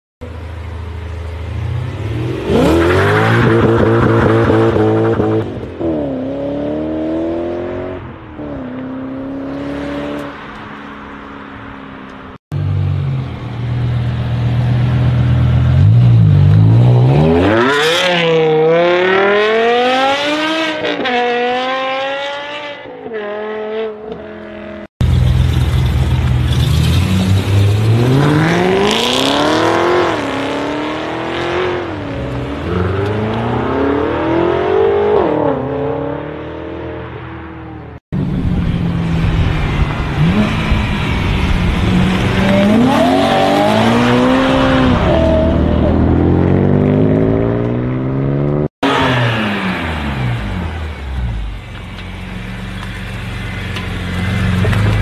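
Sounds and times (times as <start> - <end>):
car engine revving hard: 27.1 - 36.5.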